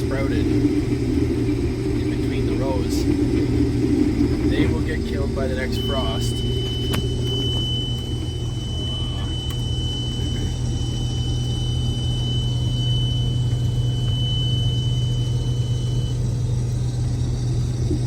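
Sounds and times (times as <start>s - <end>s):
combine harvester rumbling: 0.0s - 18.0s
high-pitched tone: 5.6s - 10.7s.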